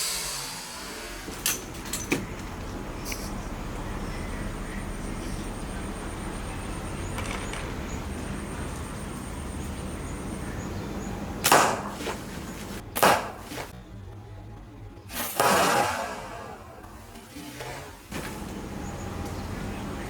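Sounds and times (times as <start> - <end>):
steady hiss: 0.0 - 13.8.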